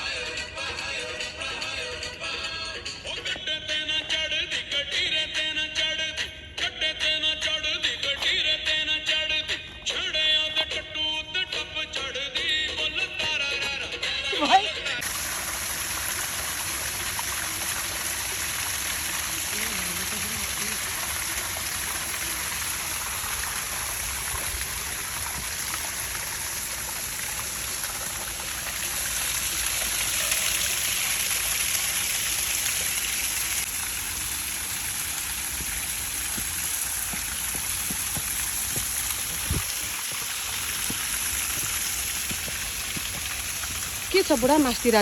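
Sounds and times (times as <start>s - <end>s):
stream water rushing: 15.0s - 45.0s.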